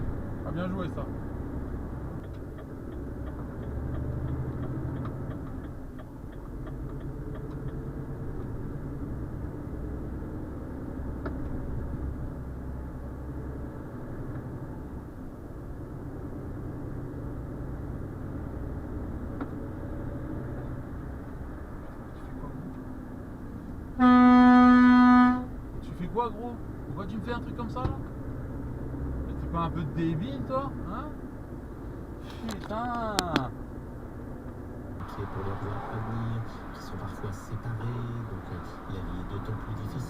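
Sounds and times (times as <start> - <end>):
truck diesel engine rumble: 0.0 - 40.0
light evenly spaced ticks: 2.2 - 7.9.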